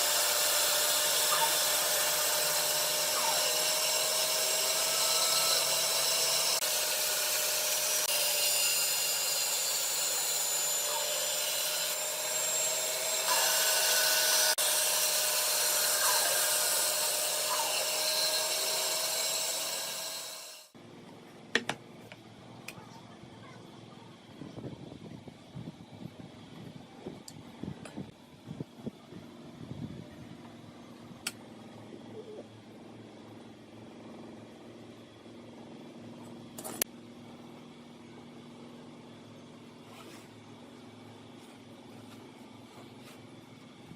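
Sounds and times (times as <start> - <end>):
power tool whining on wood: 0.0 - 20.8.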